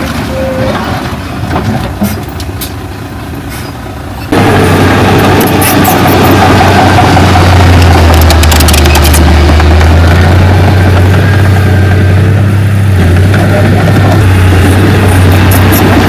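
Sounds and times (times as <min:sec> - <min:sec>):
heavy diesel engine running: 0:00.0 - 0:16.0
sharp high clicking: 0:07.7 - 0:09.9.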